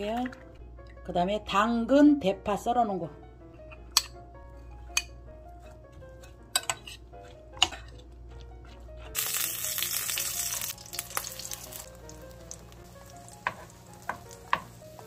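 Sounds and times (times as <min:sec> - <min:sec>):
batter sizzling in frying pan: 0:09.2 - 0:15.0.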